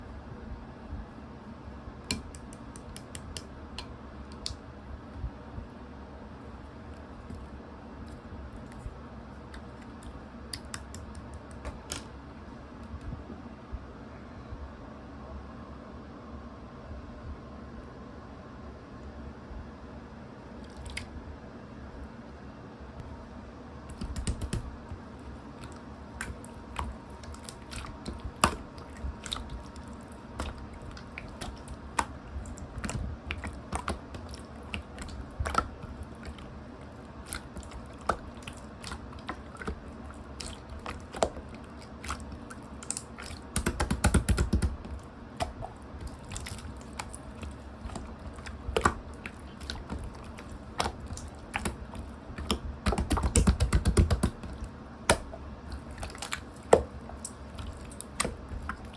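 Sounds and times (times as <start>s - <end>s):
slime clicking and popping: 10.6s - 12.0s, 23.9s - 24.8s, 25.6s - 36.5s, 37.3s - 58.9s.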